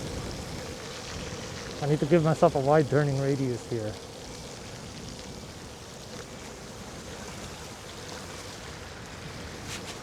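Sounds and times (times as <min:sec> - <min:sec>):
wind on microphone: 0:00.0 - 0:01.8
tyres on snowy road: 0:09.4 - 0:10.0.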